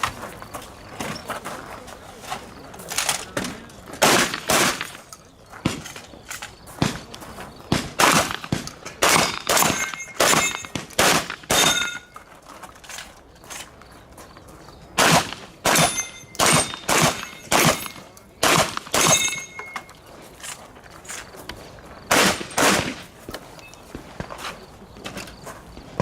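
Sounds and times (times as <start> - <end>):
rapid shotgun fire: 4.0 - 5.0, 7.7 - 11.8, 15.0 - 19.3, 22.1 - 23.1.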